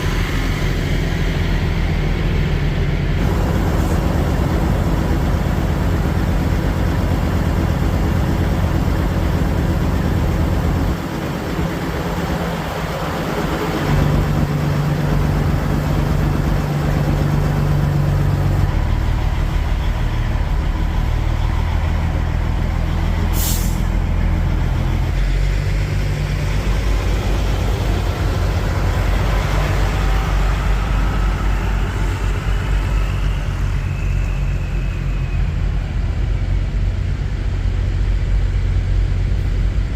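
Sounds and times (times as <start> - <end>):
diesel truck engine running: 0.0 - 39.9
air brake hiss: 23.3 - 24.0.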